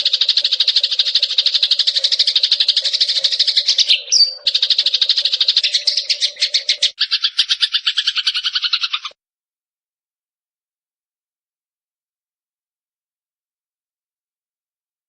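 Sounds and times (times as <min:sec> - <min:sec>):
sparrow chattering trill: 0:00.0 - 0:09.2
whistled bird note: 0:00.4 - 0:09.1.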